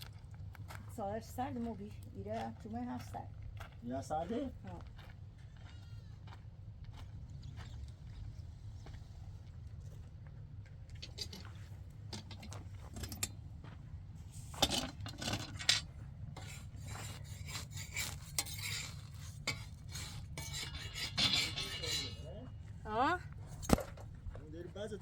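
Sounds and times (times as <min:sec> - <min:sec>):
steady low rumble: 0:00.0 - 0:17.4
objects scraping and clinking: 0:10.9 - 0:13.4, 0:14.4 - 0:22.5.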